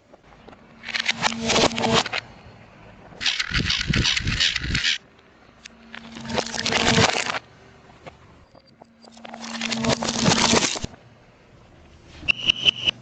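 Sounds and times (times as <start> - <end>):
car tyre crushing crackling objects: 5.9 - 7.5, 9.2 - 11.0.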